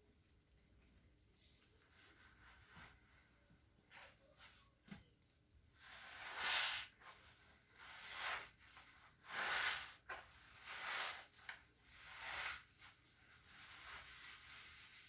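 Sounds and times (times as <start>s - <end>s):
wet cleaning tool rubbing surface: 5.9s - 15.0s.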